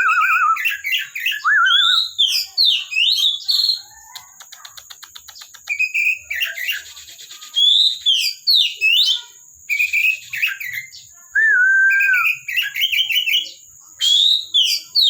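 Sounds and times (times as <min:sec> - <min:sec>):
songbird singing whistled phrases: 0:00.0 - 0:15.0.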